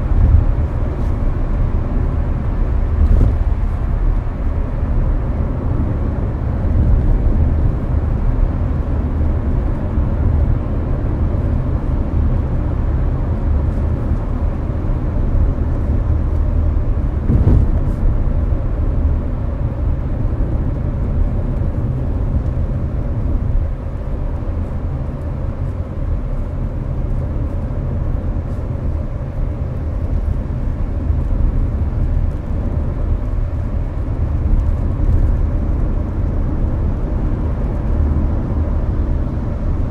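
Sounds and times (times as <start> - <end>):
air conditioner blowing: 0.0 - 39.9
road and tyre rumble: 0.0 - 39.9
brief thump: 17.3 - 18.0.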